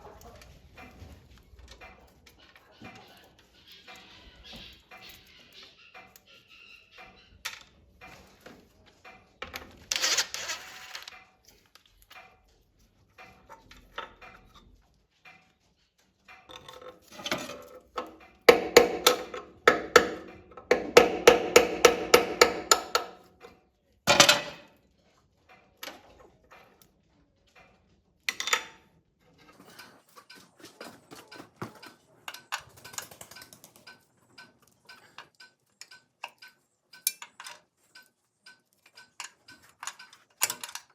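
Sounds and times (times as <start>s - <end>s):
metal tools clinking: 9.5s - 11.7s, 16.5s - 21.0s, 24.1s - 24.7s, 29.4s - 40.9s
hammer tapping on metal: 16.5s - 24.7s.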